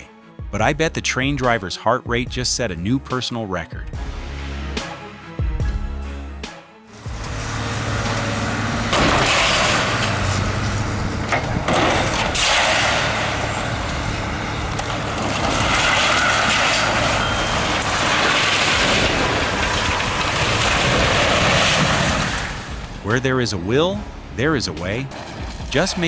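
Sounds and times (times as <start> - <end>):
heavy truck engine running: 6.9 - 23.2.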